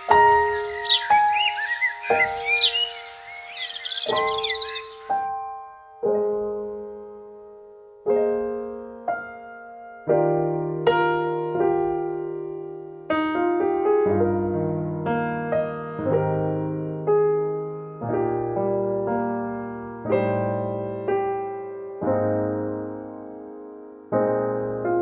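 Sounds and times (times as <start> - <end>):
gentle piano music: 0.0 - 25.0.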